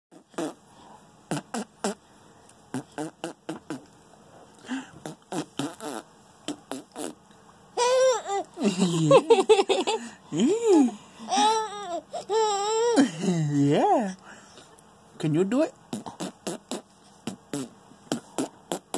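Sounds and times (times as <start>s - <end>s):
man blowing raspberries: 0.1s - 2.1s, 2.7s - 4.0s, 4.6s - 7.3s, 15.9s - 18.9s
baby squealing and babbling: 7.8s - 8.5s, 11.3s - 13.0s.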